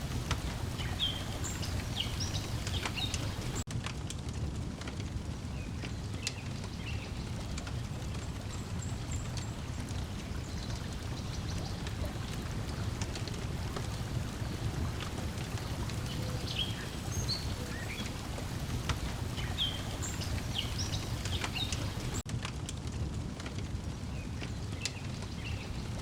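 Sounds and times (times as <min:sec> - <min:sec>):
bird chirps: 0:00.0 - 0:03.6, 0:15.4 - 0:22.2
water lapping at shore: 0:00.0 - 0:03.7, 0:06.1 - 0:22.3
wood fire crackling: 0:00.0 - 0:26.0.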